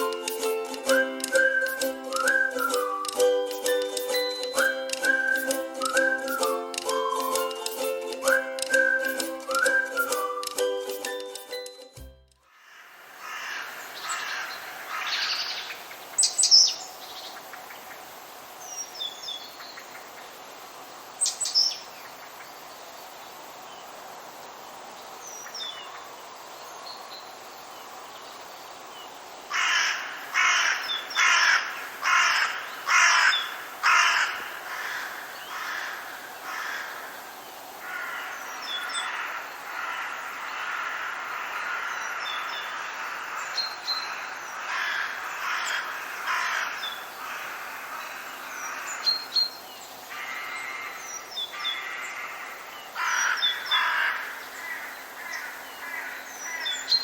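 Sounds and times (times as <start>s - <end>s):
loud harsh bird calls: 12.5s - 16.7s, 29.5s - 57.0s
birds chattering: 29.5s - 57.0s.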